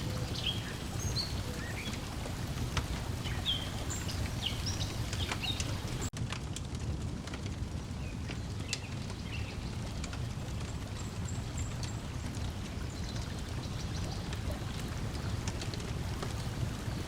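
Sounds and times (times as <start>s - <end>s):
faint bird chirps: 0.0s - 2.4s, 3.1s - 6.1s
lake water lapping at shore: 0.0s - 6.1s, 9.8s - 17.0s
wood fire crackling: 0.0s - 17.0s.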